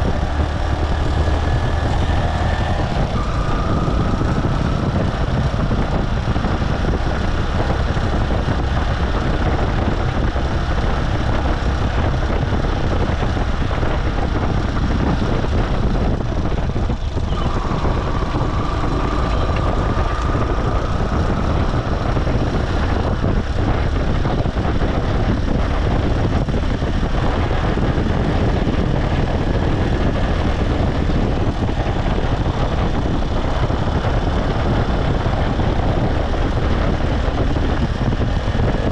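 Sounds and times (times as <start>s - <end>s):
motorcycle engine running: 0.0s - 38.9s
road noise: 0.0s - 38.9s
faint high whine: 17.3s - 22.3s.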